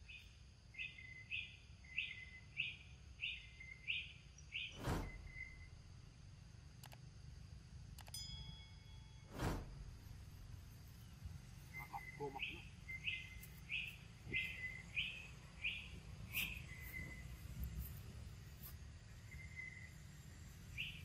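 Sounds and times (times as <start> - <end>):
low background rumble: 0.5 - 21.0
bird calling high notes: 11.6 - 15.8.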